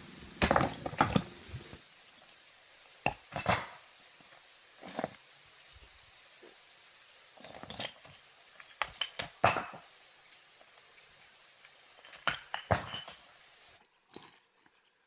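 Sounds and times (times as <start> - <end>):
hard objects clinking and knocking: 12.0 - 13.2.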